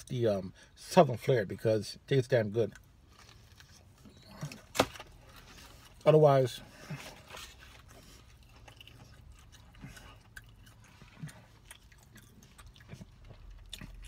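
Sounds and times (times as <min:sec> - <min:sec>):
faint chewing: 0:06.7 - 0:14.0
soft mouth sounds: 0:06.9 - 0:14.0.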